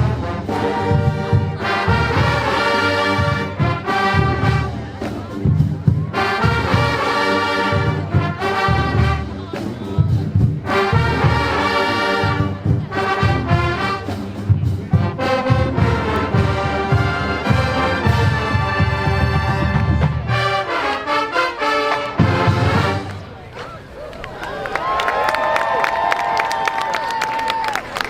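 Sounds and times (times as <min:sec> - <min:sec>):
brass horns playing: 0:00.0 - 0:05.4, 0:06.1 - 0:09.7, 0:10.5 - 0:23.4
steady drum beat: 0:00.0 - 0:23.1.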